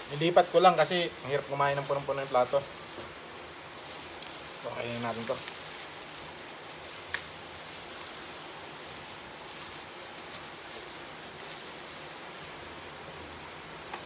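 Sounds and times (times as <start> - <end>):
soft crackles: 0.0 - 14.0
steady hiss: 0.0 - 14.0
biting and chewing: 2.7 - 13.3.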